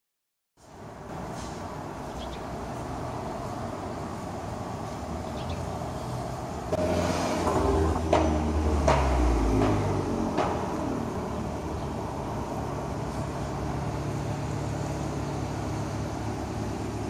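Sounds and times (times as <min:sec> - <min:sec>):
car engine with exhaust drone: 0:00.6 - 0:17.0
street traffic: 0:00.6 - 0:17.0.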